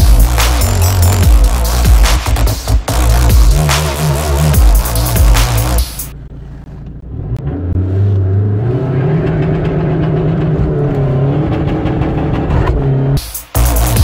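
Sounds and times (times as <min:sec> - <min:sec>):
music: 0:00.0 - 0:06.1, 0:13.1 - 0:14.0
diesel car engine driving: 0:00.0 - 0:14.0.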